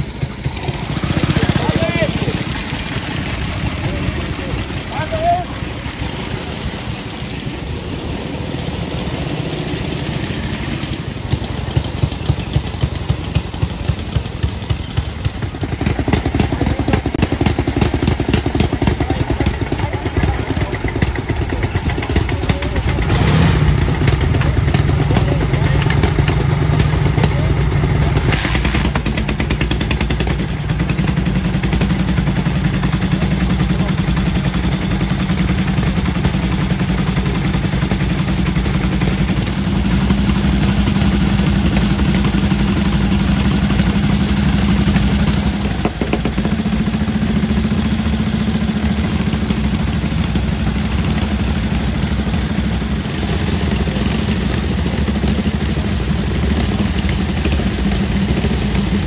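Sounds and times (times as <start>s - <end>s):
motorcycle engines idling: 0.0s - 59.0s.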